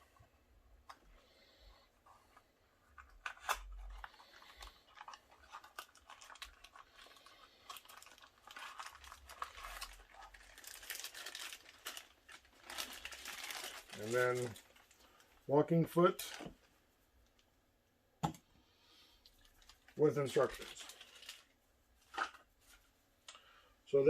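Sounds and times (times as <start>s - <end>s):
plastic packaging crinkling and tearing: 2.8s - 15.4s, 19.3s - 22.8s.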